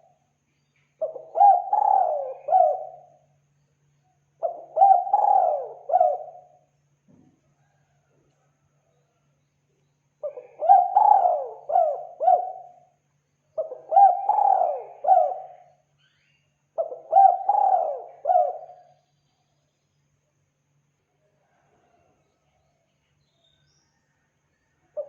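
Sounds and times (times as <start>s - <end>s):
dove cooing: 1.0s - 3.2s, 4.4s - 6.6s, 10.2s - 12.9s, 13.6s - 15.8s, 16.8s - 19.0s.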